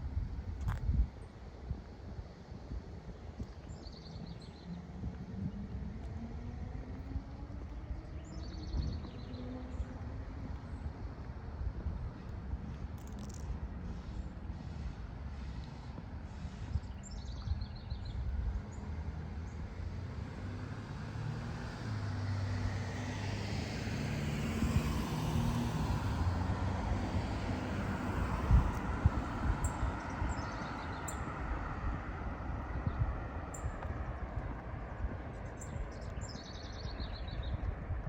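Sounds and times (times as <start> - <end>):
car passing by: 18.7 - 36.0.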